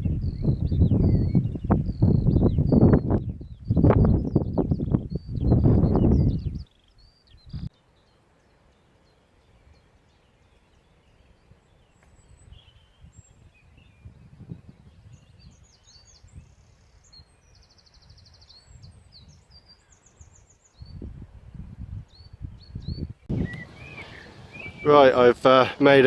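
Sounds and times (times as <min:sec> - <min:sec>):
small birds chirping: 0:00.0 - 0:26.0
high bird trills: 0:22.7 - 0:26.0.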